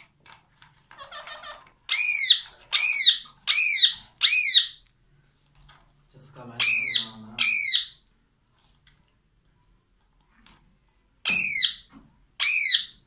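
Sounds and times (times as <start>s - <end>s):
parrot buzzy chatter: 0.9s - 4.6s
parrot squawking: 0.9s - 4.8s, 6.6s - 8.0s, 11.2s - 13.0s.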